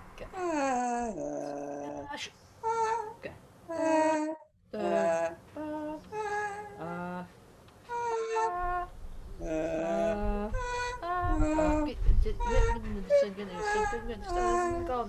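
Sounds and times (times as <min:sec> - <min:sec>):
woman vocalising wordlessly: 0:00.2 - 0:15.0
low rumble: 0:08.7 - 0:15.0.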